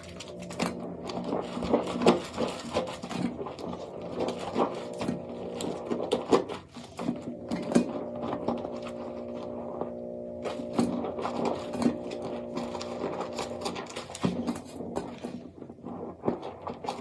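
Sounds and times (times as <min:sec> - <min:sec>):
soap clicks and scrapes: 0:00.0 - 0:09.8, 0:10.4 - 0:17.0
low hum: 0:07.3 - 0:13.8.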